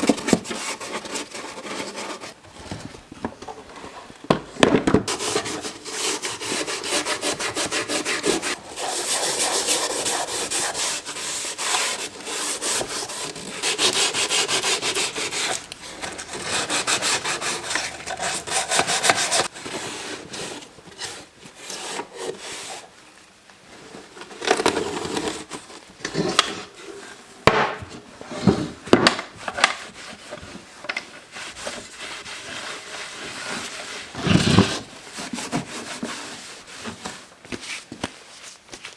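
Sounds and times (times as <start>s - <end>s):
rubbing on a wooden surface: 5.1s - 19.5s.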